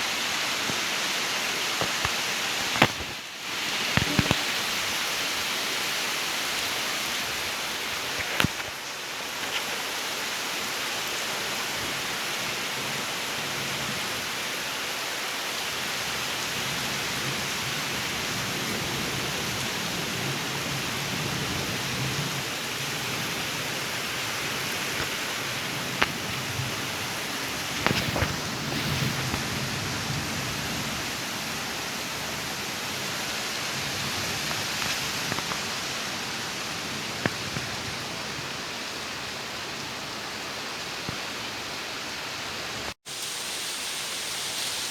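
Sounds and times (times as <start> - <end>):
steady rain falling: 0.0 - 44.9
sharp taps of raindrops: 0.5 - 5.5, 6.6 - 10.0, 23.0 - 29.6, 33.9 - 36.1, 37.0 - 38.0.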